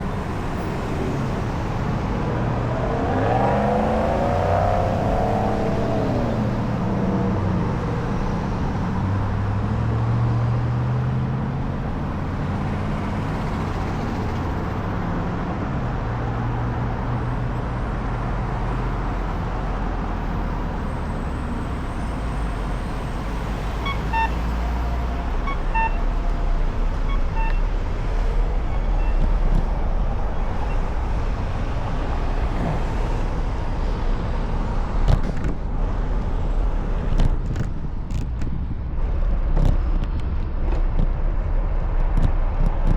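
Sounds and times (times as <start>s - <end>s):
passing cars and trucks rumbling: 0.0s - 42.9s
short high electronic beeps: 25.4s - 26.0s.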